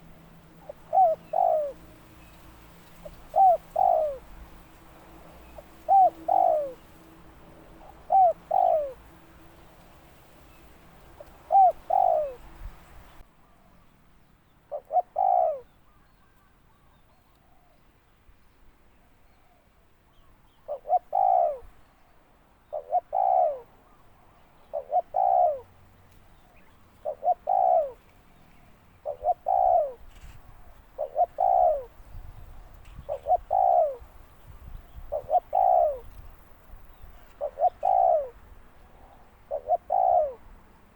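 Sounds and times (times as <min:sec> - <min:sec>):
dove cooing: 0:00.0 - 0:09.9, 0:11.0 - 0:13.2, 0:14.7 - 0:15.8, 0:20.7 - 0:21.7, 0:22.6 - 0:24.0, 0:24.6 - 0:25.8, 0:26.6 - 0:28.4, 0:29.0 - 0:40.6.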